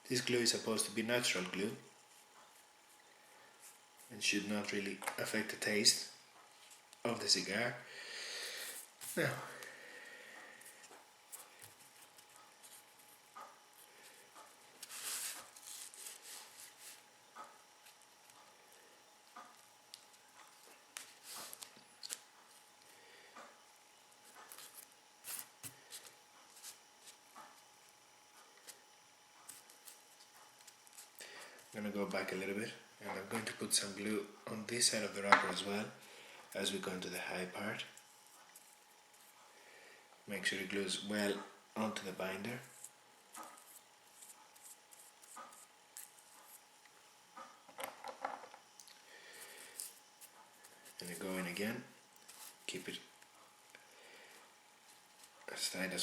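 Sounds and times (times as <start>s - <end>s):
leaf crinkling: 14.7s - 17.0s.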